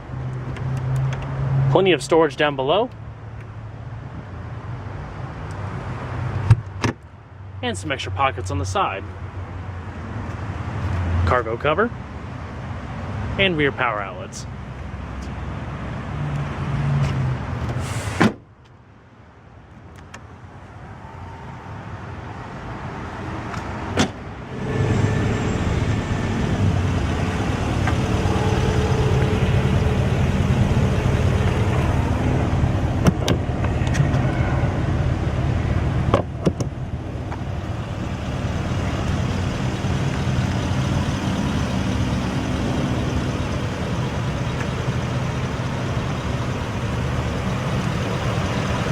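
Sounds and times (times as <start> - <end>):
tailgate shutting with a thud: 17.7 - 18.4, 23.9 - 24.2
car engine idling: 24.5 - 48.9.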